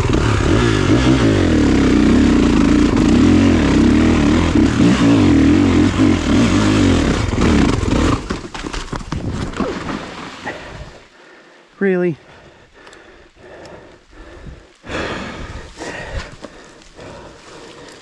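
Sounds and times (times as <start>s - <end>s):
dirt bike engine idling: 0.0s - 8.6s, 12.4s - 18.0s.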